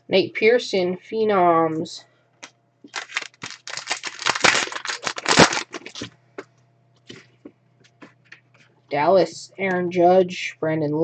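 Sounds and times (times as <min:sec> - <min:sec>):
foil wrapper crinkling and tearing: 0:02.9 - 0:06.1.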